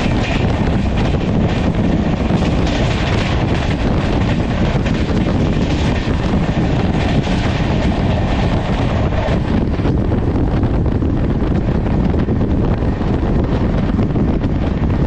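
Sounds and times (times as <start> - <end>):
train wheels rumbling on rails: 0.0 - 15.0
wind buffeting microphone: 0.0 - 15.0.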